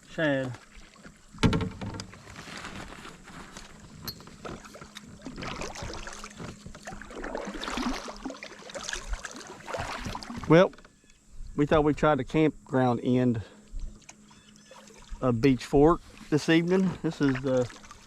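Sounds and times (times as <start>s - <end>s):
knocks against plastic hull: 1.4s - 2.1s
water splashing: 4.5s - 10.6s, 14.6s - 15.4s, 16.0s - 18.0s.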